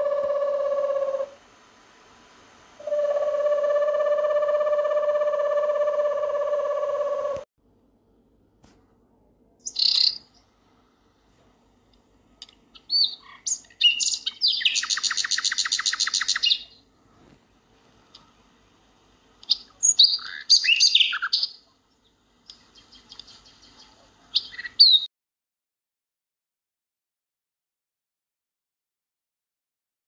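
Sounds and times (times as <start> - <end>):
songbird chirps and trills: 0.0 - 1.4, 2.8 - 7.4, 9.6 - 10.6, 12.3 - 25.1.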